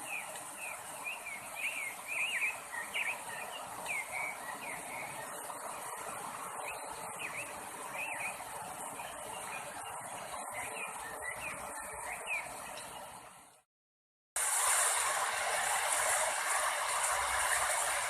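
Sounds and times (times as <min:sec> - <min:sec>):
small birds chirping: 0:00.0 - 0:13.2
steady outdoor hiss: 0:00.0 - 0:13.6, 0:14.4 - 0:18.0.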